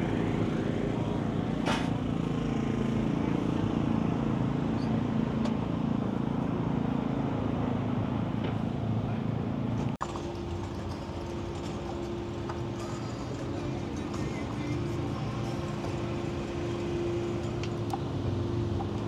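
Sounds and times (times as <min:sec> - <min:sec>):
vehicle engine idling: 0:09.0 - 0:19.0.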